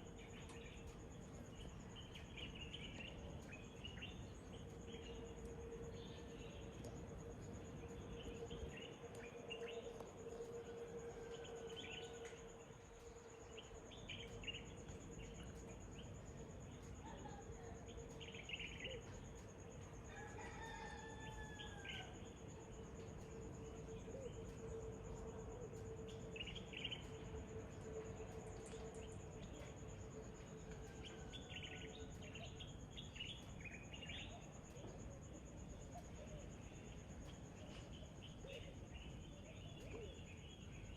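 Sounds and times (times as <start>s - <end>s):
steady faint hum: 0.0s - 40.9s
rooster crowing: 10.8s - 12.5s, 20.1s - 22.2s
faint bird chirps: 35.7s - 40.9s.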